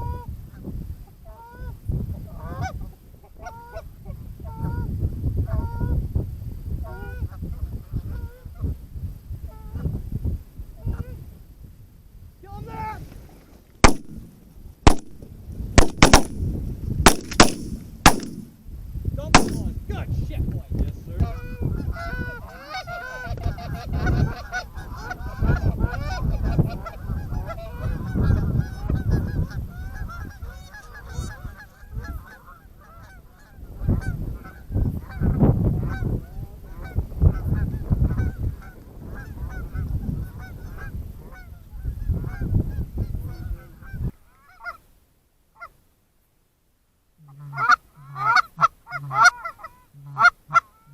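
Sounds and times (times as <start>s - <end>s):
wind rumble on microphone: 0.0s - 13.3s, 18.7s - 44.2s
shotgun shots: 13.8s - 18.6s, 19.4s - 19.8s
geese honking: 47.3s - 50.9s.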